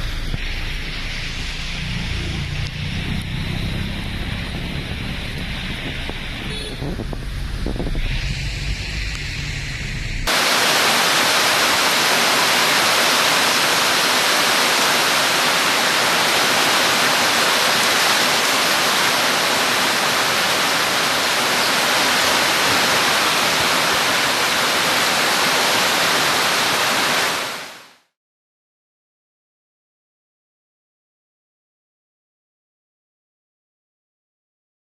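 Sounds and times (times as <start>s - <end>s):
low rumble: 0.0s - 10.3s
rushing water: 10.3s - 27.9s.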